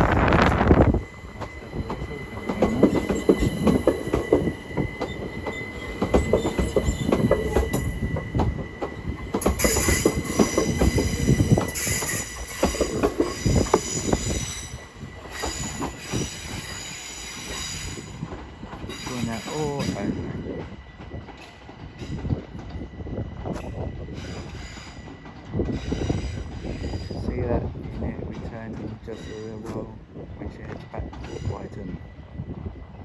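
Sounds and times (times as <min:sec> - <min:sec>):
train wheels clicking over rail joints: 0:00.0 - 0:32.0
wheel flange squeal: 0:00.4 - 0:08.4.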